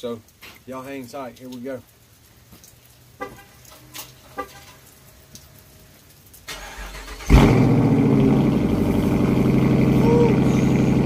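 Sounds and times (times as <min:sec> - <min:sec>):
car engine idling: 0:06.5 - 0:11.0.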